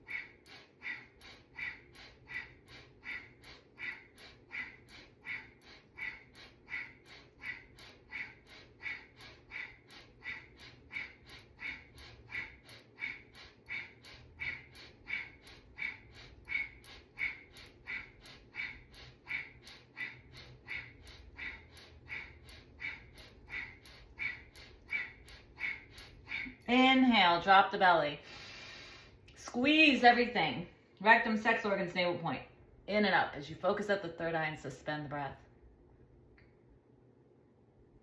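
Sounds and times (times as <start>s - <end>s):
rhythmic breathing through nose: 0.0s - 29.4s.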